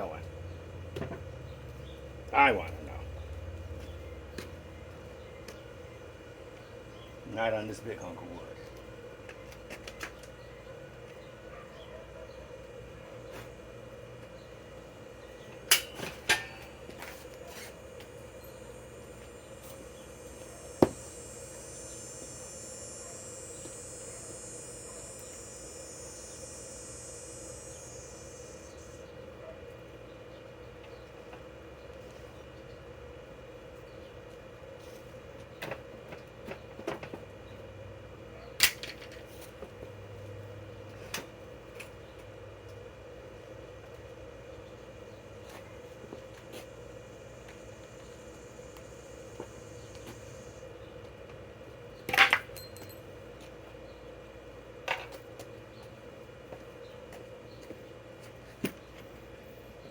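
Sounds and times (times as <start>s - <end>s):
steady low hum: 0.0s - 59.9s
high hiss: 16.1s - 29.0s, 46.6s - 50.8s.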